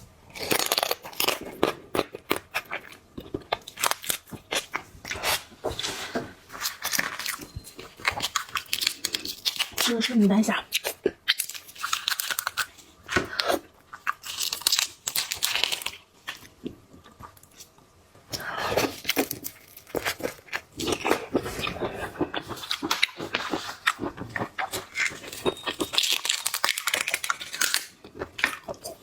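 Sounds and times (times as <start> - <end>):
crunchy chewing: 0.3 - 17.7, 18.4 - 29.0
shrimp shell crackling and tearing: 3.5 - 4.7, 8.0 - 10.0, 10.7 - 12.7, 14.0 - 16.0, 24.9 - 29.0.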